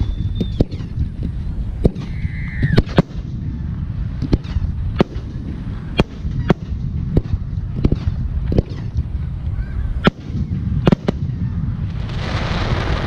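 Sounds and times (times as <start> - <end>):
low rumble: 0.0 - 13.0
firework bangs: 10.0 - 13.0.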